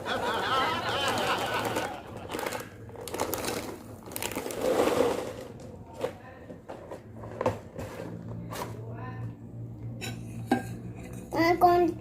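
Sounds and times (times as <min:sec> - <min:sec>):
dry cereal rattling into bowl: 0:00.9 - 0:05.6.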